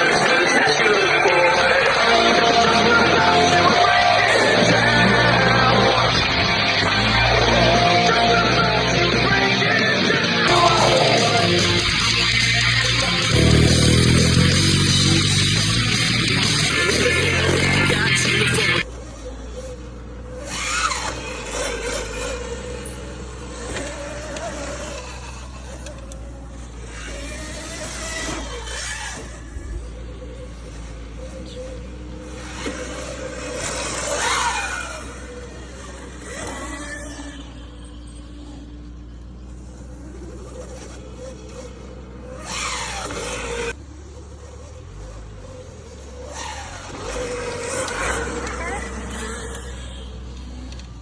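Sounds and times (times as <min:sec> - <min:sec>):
off-road vehicle engine running: 0:00.0 - 0:51.0
background music: 0:06.8 - 0:18.6.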